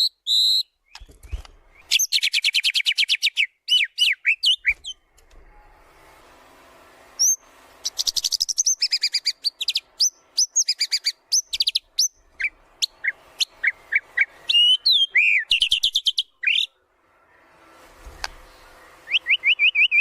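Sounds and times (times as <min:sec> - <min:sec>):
bird singing fast varied song: 0:00.0 - 0:05.0, 0:07.2 - 0:16.8, 0:18.9 - 0:20.0.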